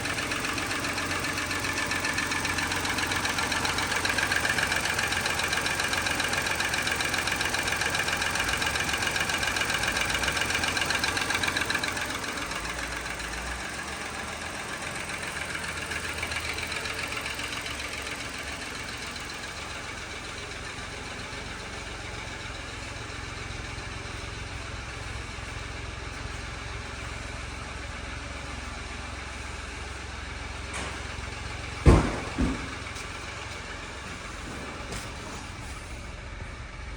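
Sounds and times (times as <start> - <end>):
car engine idling: 0.0 - 36.9
sharp knock: 31.9 - 32.8.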